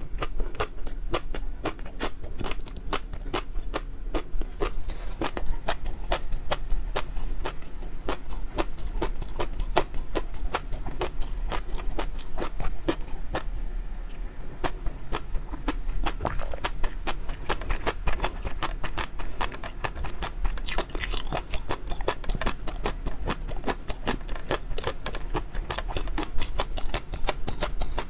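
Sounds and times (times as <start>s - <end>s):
wet mouth chewing clicks: 0.2s - 13.5s, 14.6s - 28.0s.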